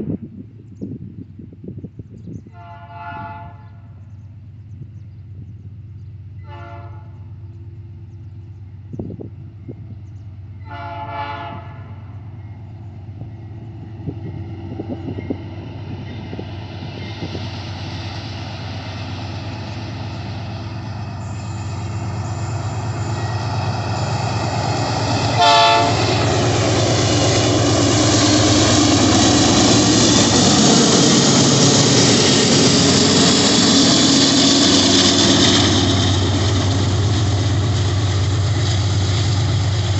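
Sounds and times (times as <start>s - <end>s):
rumble of approaching train: 0.0s - 39.9s
locomotive horn: 2.5s - 3.9s, 6.4s - 7.3s, 10.6s - 12.1s, 25.2s - 26.5s
train engine running: 3.5s - 39.9s.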